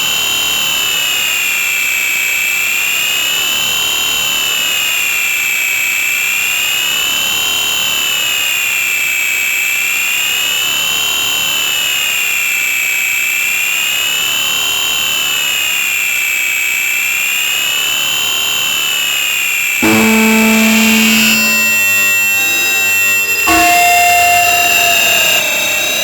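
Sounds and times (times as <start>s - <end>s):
piercing whistle-like feedback tone: 19.8s - 26.0s.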